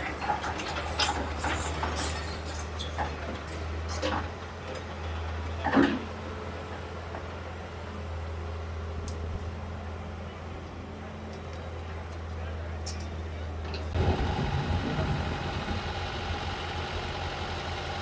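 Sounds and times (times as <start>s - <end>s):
heavy machine engine running: 13.6s - 18.0s.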